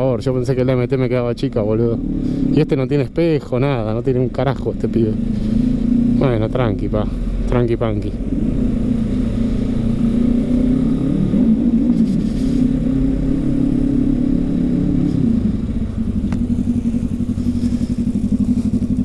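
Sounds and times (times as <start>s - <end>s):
motorcycle engine running: 1.8s - 19.0s.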